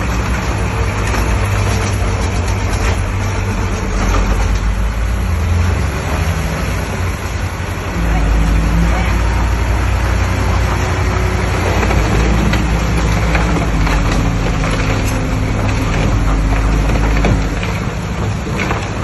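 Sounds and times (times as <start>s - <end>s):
heavy diesel engine under load: 0.0s - 19.0s
cracks and knocks: 11.6s - 19.0s.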